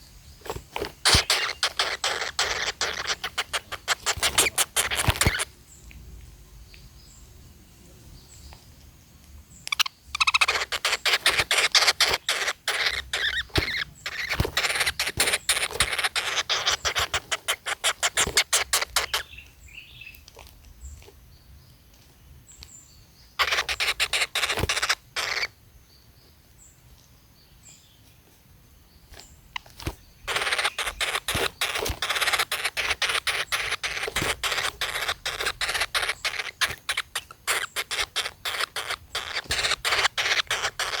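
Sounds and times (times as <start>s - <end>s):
woodpecker nestlings rattling calls: 0.0s - 5.8s, 9.6s - 20.2s, 22.5s - 26.0s, 29.2s - 41.0s.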